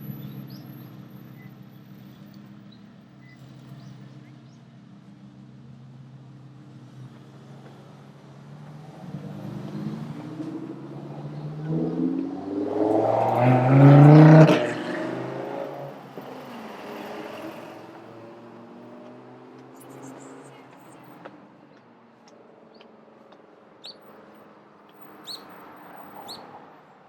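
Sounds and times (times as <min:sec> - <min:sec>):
vehicle engine accelerating past: 0:08.5 - 0:20.5.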